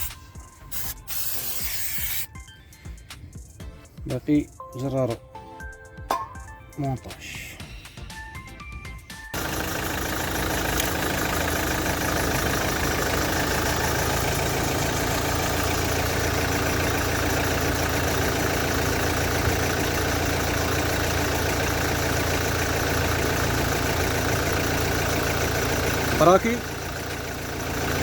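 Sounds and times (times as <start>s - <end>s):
diesel engine idling: 9.4s - 28.0s.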